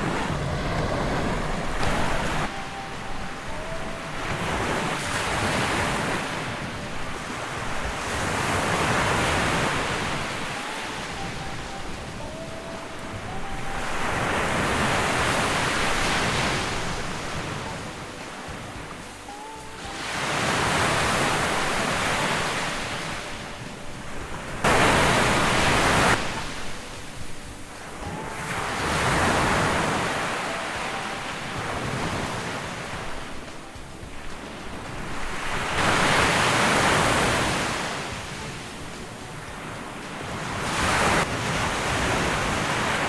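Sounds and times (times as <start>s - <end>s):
surf on sandy beach: 0.0s - 43.0s.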